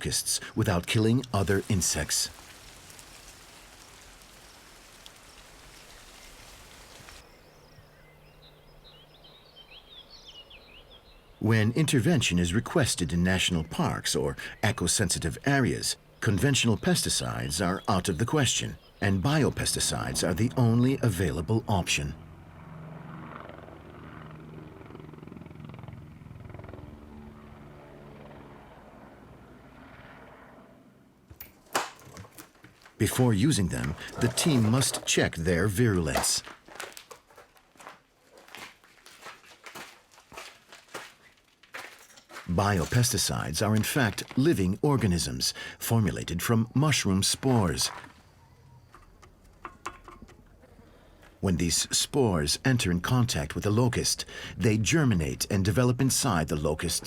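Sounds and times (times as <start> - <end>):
steady rain hiss: 1.2 - 7.4
faint bird chirps: 48.1 - 49.4.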